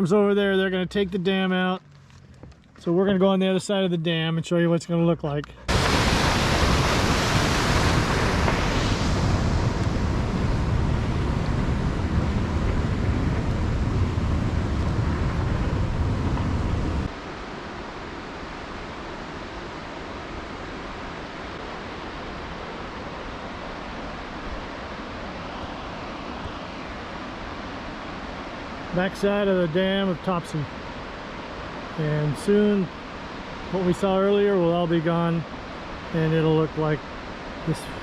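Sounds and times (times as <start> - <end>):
steady rushing hiss: 5.6 - 38.0
wind buffeting microphone: 5.7 - 17.1.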